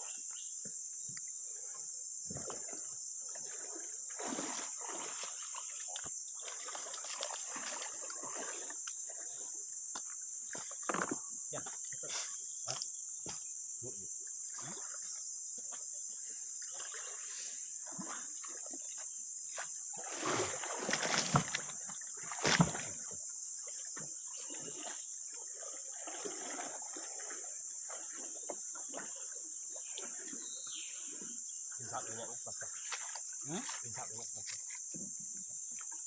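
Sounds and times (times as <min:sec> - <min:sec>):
insects droning: 0:00.0 - 0:36.0
knocks and splashes: 0:02.2 - 0:13.5, 0:14.4 - 0:15.9, 0:16.6 - 0:36.0.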